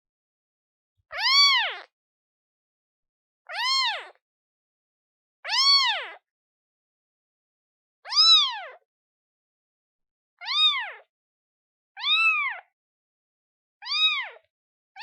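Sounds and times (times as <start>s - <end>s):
kitten meowing: 1.1s - 1.9s, 3.5s - 4.2s, 5.4s - 6.2s, 8.1s - 8.8s, 10.4s - 11.1s, 12.0s - 12.7s, 13.8s - 14.4s.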